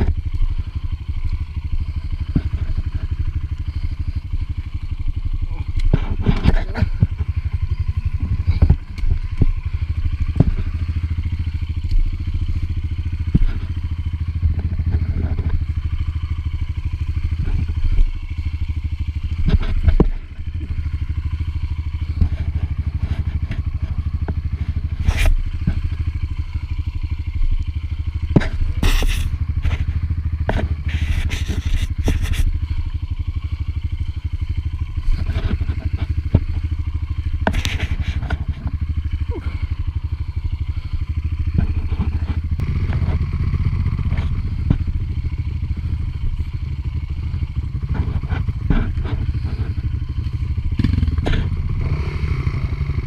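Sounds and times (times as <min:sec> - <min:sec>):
dirt bike engine running: 0:00.0 - 0:53.0
sharp knocks and scraping clatter: 0:00.0 - 0:53.0.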